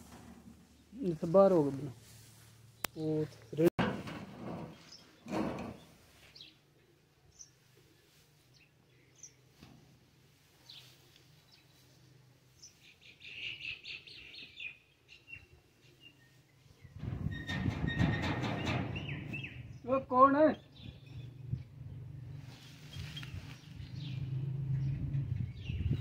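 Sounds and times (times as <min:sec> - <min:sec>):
birds chirping: 0:04.7 - 0:09.5, 0:12.6 - 0:17.0, 0:18.6 - 0:26.0.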